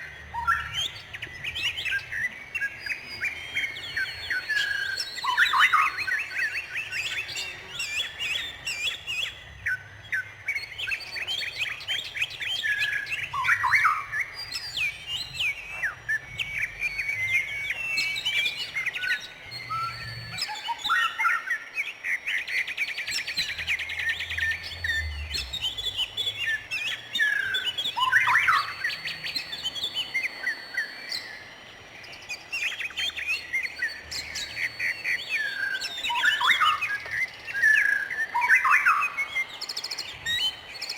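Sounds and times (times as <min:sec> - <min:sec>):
bird trill: 0:00.0 - 0:40.9
songbirds chirping and singing: 0:00.0 - 0:40.9.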